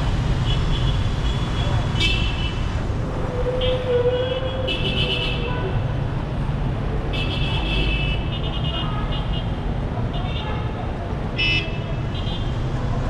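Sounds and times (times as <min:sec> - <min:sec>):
city traffic engines: 0:00.0 - 0:13.0
vehicle horns honking: 0:04.2 - 0:05.7, 0:07.1 - 0:09.5.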